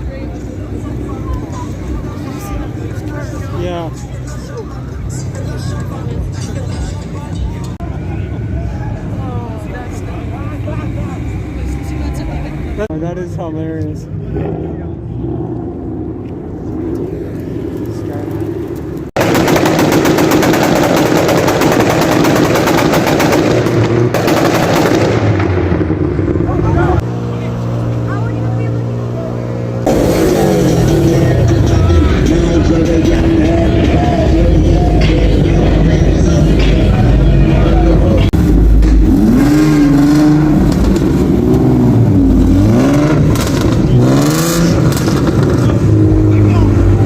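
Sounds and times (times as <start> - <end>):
exhaust popping and crackling: 16.2 - 27.0, 29.8 - 47.0
car engine revving hard: 29.8 - 47.0.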